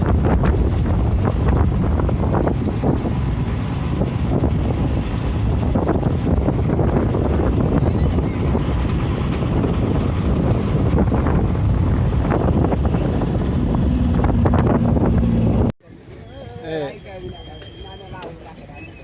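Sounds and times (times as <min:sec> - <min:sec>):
wind buffeting microphone: 0:00.0 - 0:15.7
vehicle rumble: 0:00.0 - 0:15.8
steady low hum: 0:09.8 - 0:15.7.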